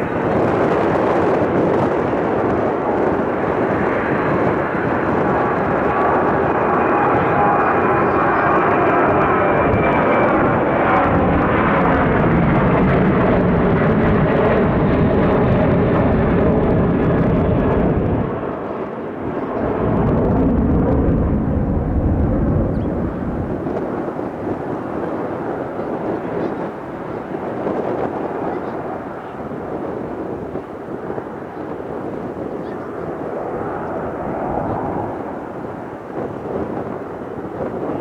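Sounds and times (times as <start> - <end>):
turboprop airliner engines: 0.0 - 38.0
faint falling tones: 19.6 - 23.8.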